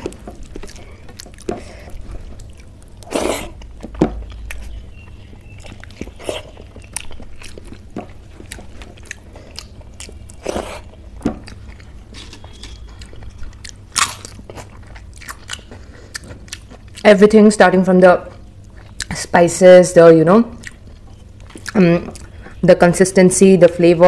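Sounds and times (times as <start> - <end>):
crunchy bites: 0.0 - 17.0
person chewing food: 0.0 - 17.1, 18.3 - 19.2, 20.6 - 22.6.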